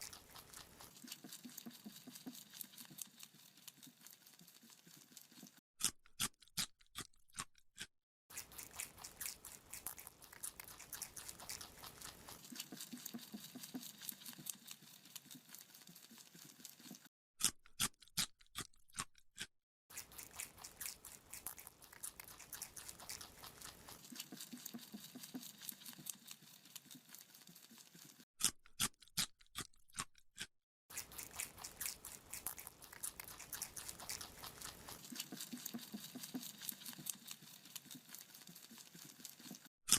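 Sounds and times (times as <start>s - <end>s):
rabbit chewing: 0.0s - 5.6s, 8.3s - 17.1s, 19.9s - 28.2s, 30.9s - 39.9s
rabbit crunching carrot: 0.0s - 39.9s.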